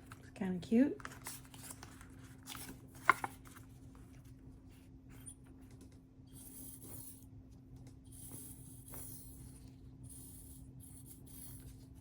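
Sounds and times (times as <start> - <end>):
paper being handled: 1.0 - 4.2
paper rubbing and rustling: 1.0 - 4.2.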